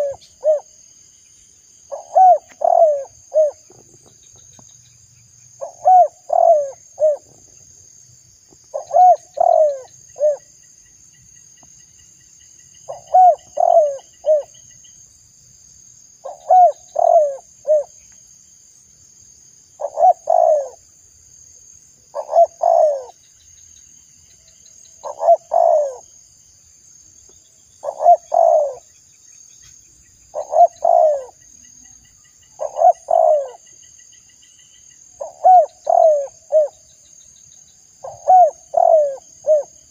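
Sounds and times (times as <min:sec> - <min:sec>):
dove cooing: 0:00.0 - 0:00.7, 0:01.9 - 0:03.9, 0:05.6 - 0:07.5, 0:08.7 - 0:10.5, 0:12.9 - 0:14.5, 0:16.2 - 0:18.0, 0:19.8 - 0:20.8, 0:22.1 - 0:23.2, 0:25.0 - 0:26.0, 0:27.8 - 0:28.9, 0:30.3 - 0:31.4, 0:32.6 - 0:33.6, 0:35.2 - 0:36.8, 0:38.0 - 0:39.8
faint high-pitched hiss: 0:00.0 - 0:39.9.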